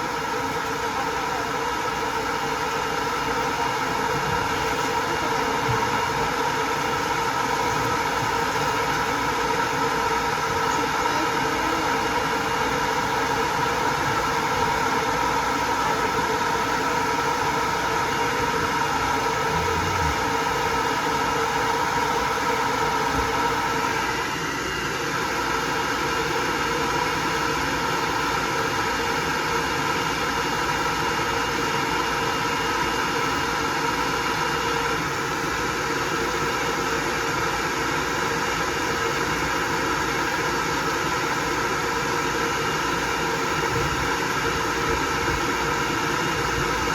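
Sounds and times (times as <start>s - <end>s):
hair dryer blowing: 0.0s - 35.0s.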